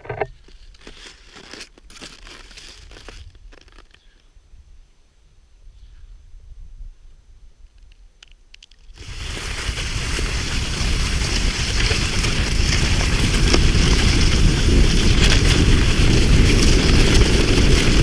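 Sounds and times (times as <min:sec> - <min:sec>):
wind rushing on microphone: 0:09.0 - 0:18.0.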